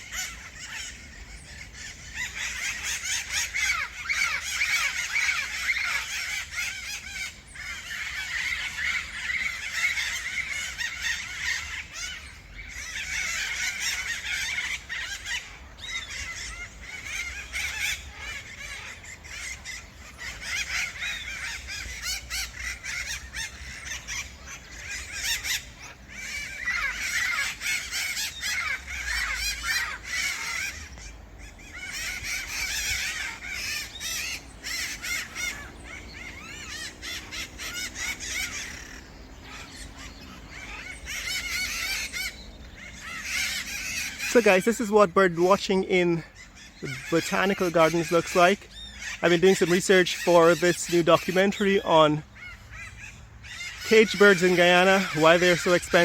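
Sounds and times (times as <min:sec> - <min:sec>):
parrots squawking and chattering: 0:00.0 - 0:56.0.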